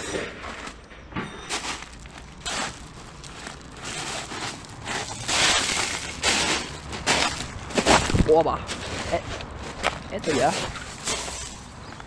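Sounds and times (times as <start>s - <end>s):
footsteps crunching on rubble: 0.0s - 12.0s.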